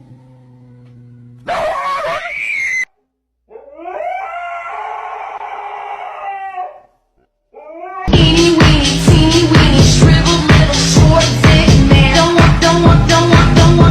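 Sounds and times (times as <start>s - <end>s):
dog howling: 1.4s - 2.9s, 3.5s - 7.0s, 7.6s - 8.1s.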